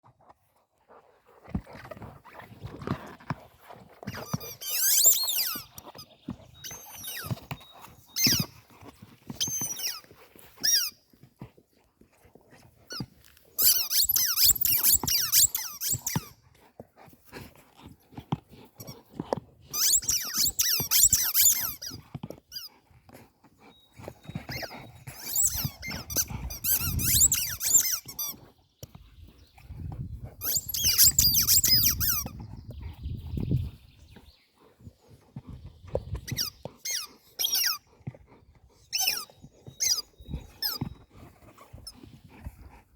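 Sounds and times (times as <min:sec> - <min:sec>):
squeaky toys squeaking: 0:04.3 - 0:05.7, 0:06.6 - 0:08.5, 0:09.4 - 0:10.9, 0:13.6 - 0:16.3, 0:19.7 - 0:22.7, 0:24.5 - 0:28.3, 0:30.4 - 0:32.3, 0:36.3 - 0:37.8, 0:38.9 - 0:40.8.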